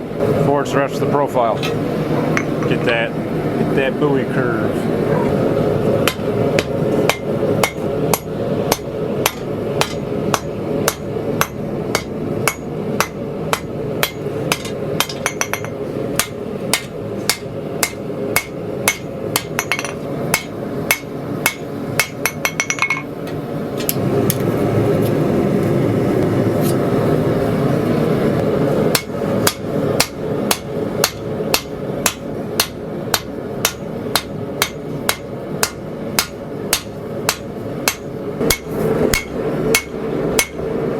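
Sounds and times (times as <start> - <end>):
steady rushing roar: 0.0 - 40.9
hammer striking steel on anvil: 6.0 - 24.4, 28.9 - 40.7.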